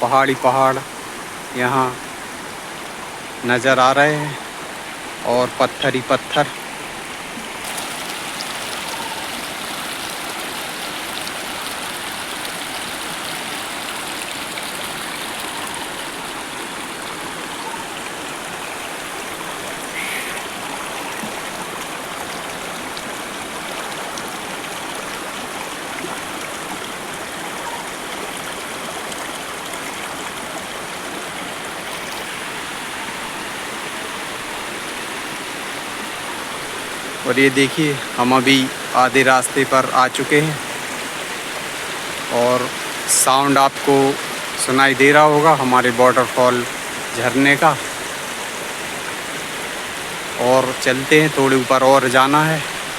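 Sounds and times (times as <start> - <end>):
water rushing over rocks: 0.0 - 52.9.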